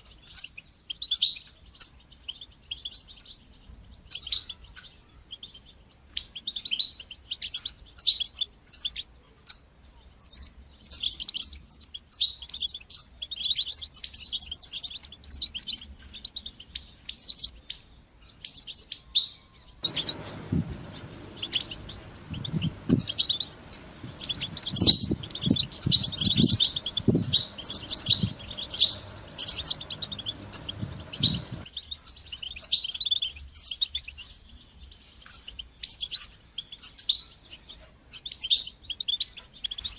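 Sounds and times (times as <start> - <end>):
goldfinch twittering chirps: 0.1 - 34.4, 35.2 - 39.9
low noise with soft thumps: 19.8 - 31.7.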